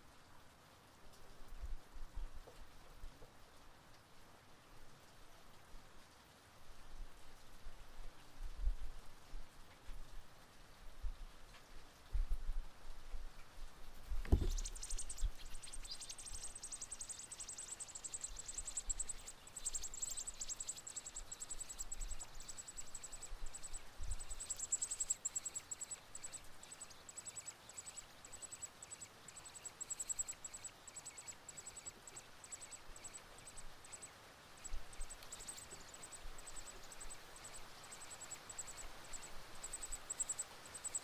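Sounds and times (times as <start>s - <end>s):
brief low thump: 14.2s - 14.9s
nestlings high-pitched begging chirps: 14.3s - 41.0s.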